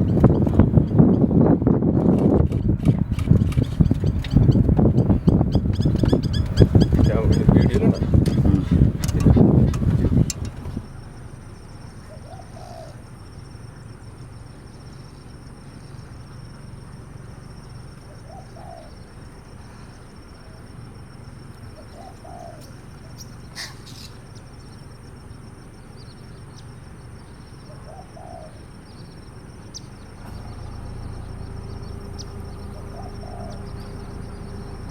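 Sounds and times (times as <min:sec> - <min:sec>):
steady low hum: 0:00.0 - 0:34.9
dove cooing: 0:03.0 - 0:13.8, 0:17.7 - 0:20.9, 0:21.5 - 0:24.8, 0:27.4 - 0:34.9.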